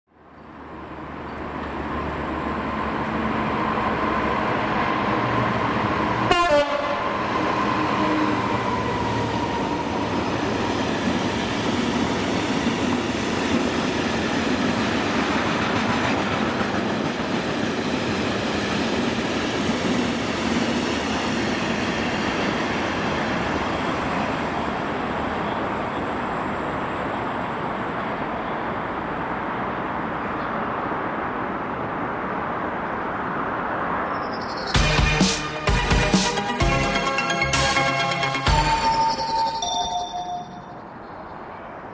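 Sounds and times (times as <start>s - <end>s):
train wheels rushing on rails: 0.6s - 32.7s.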